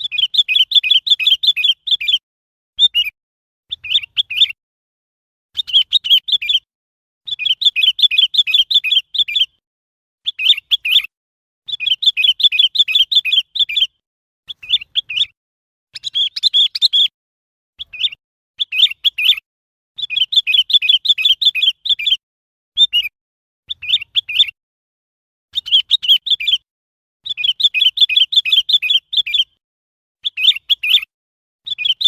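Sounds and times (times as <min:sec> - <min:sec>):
bulbul chirping: 0:02.8 - 0:04.6, 0:11.7 - 0:15.4, 0:16.0 - 0:17.1.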